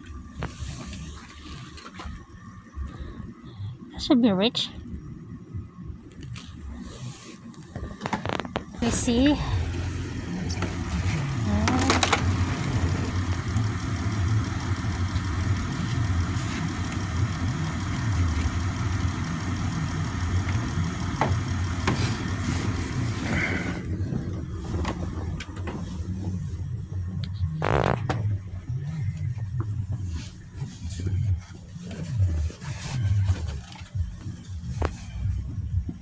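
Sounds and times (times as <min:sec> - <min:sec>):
car engine idling: 0:07.8 - 0:36.0.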